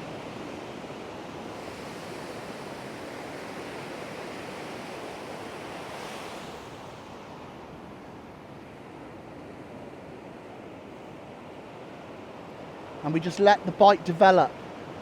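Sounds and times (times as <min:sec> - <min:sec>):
surf breaking on beach: 0:00.0 - 0:07.3.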